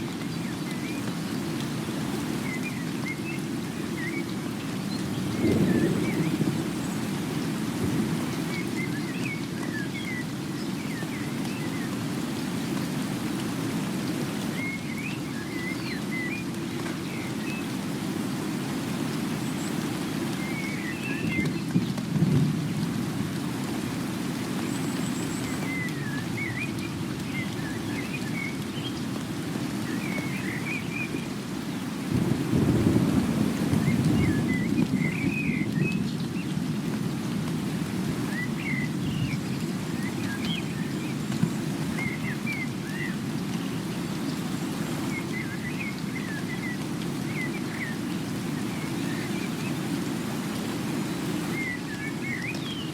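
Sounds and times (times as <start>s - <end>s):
steady rain-like noise: 0.0s - 52.9s
songbird chirping: 24.5s - 31.9s.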